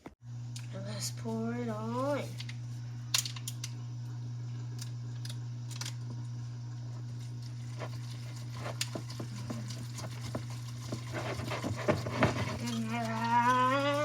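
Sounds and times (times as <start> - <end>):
steady low hum: 0.2 - 14.0.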